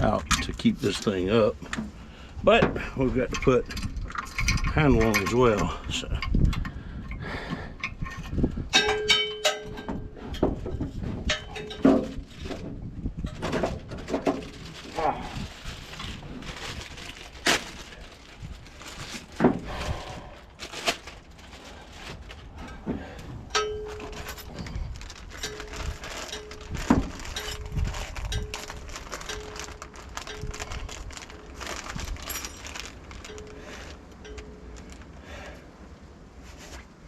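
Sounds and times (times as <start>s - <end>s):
metal parts clanking: 2.6s - 6.8s, 7.8s - 14.9s, 23.5s - 35.1s.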